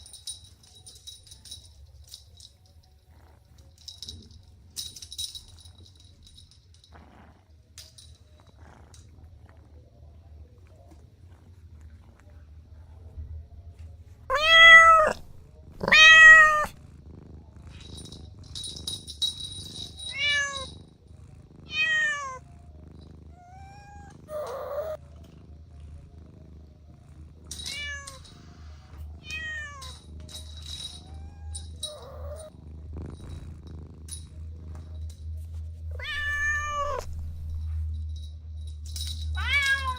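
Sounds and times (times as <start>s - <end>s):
low steady hum: 0.0s - 39.9s
cat meowing: 14.3s - 16.8s, 20.1s - 20.7s, 21.7s - 22.4s, 23.3s - 25.0s, 27.7s - 28.2s, 29.2s - 29.9s, 35.9s - 37.2s.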